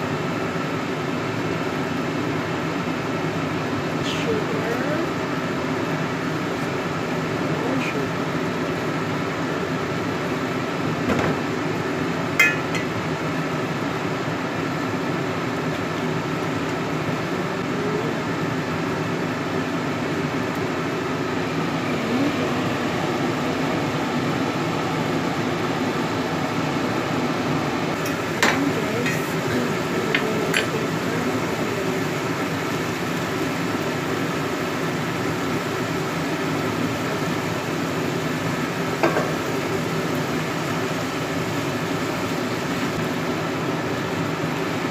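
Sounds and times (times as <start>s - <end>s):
steady mechanical hum: 0.0s - 44.9s
spoon knocking against pan: 12.4s - 12.9s.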